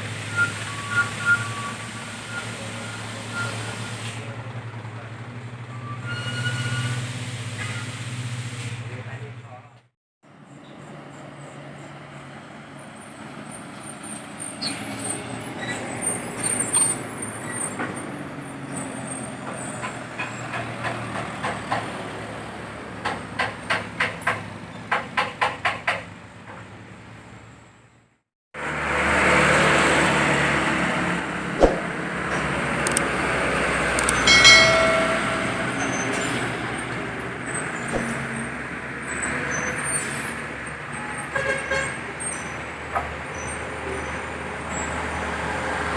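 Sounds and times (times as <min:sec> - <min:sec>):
loud truck passing: 0:00.0 - 0:09.3, 0:10.3 - 0:24.8, 0:28.6 - 0:45.9
traffic noise: 0:00.0 - 0:45.9.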